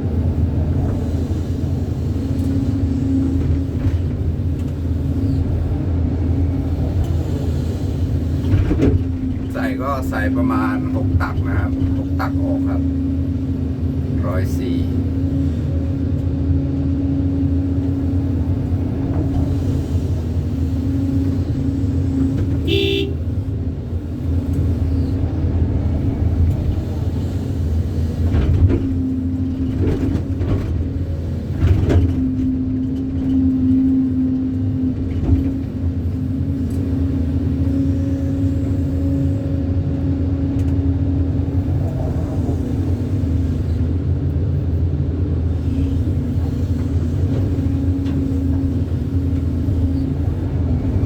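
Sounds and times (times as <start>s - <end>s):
excavator diesel engine running: 0.0s - 51.0s
horn toot: 22.7s - 23.2s.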